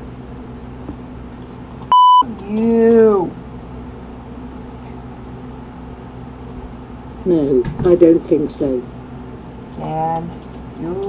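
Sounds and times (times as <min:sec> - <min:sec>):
low hum: 0:00.0 - 0:11.0
electronic censor bleep: 0:01.9 - 0:02.3.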